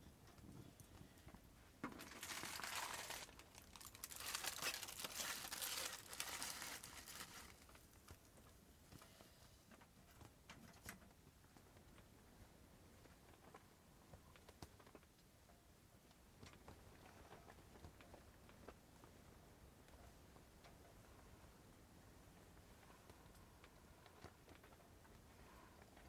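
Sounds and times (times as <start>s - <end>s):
crinkling rustle of handling: 1.3s - 12.2s.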